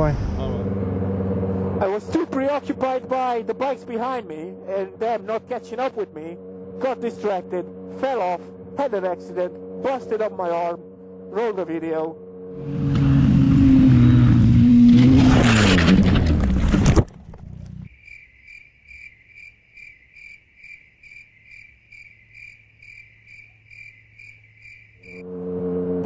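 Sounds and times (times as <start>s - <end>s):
motorcycle engine running hard: 0.0s - 15.2s
cricket chirping: 17.9s - 25.3s.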